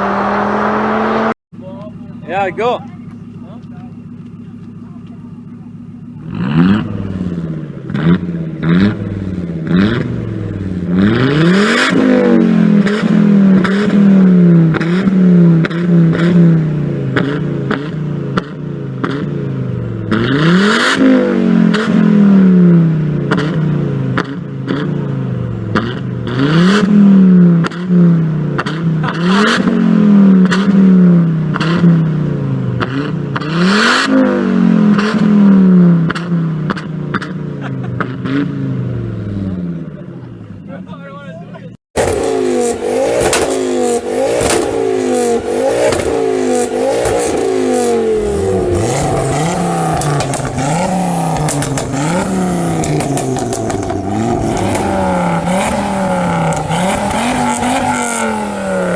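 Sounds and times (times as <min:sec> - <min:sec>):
car engine revving: 0:00.0 - 0:40.7, 0:41.9 - 0:58.9
engine cracks and pops: 0:03.0 - 0:05.4, 0:42.0 - 0:44.8, 0:45.8 - 0:47.9, 0:48.7 - 0:58.1.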